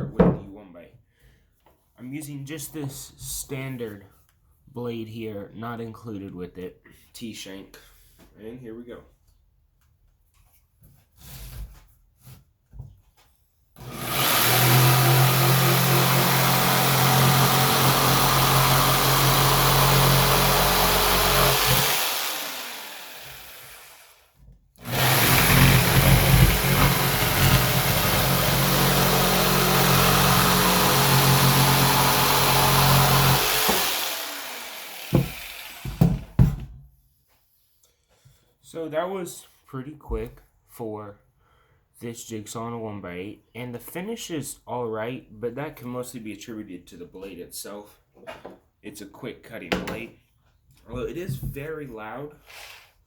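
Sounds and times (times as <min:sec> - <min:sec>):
jigsaw cutting wood: 0:13.8 - 0:36.5.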